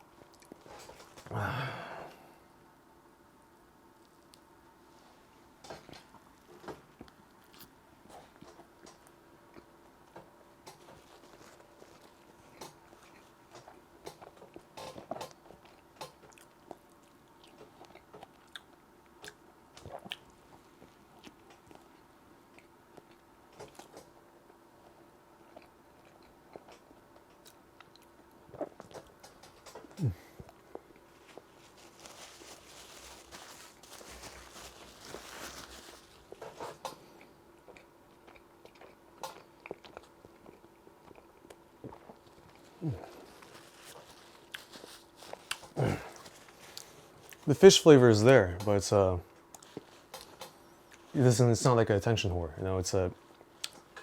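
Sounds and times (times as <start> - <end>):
small crunches: 5.6 - 9.1, 27.4 - 37.3, 38.8 - 47.5
person chewing: 6.9 - 8.6, 10.8 - 24.0, 25.4 - 47.5, 53.3 - 54.0.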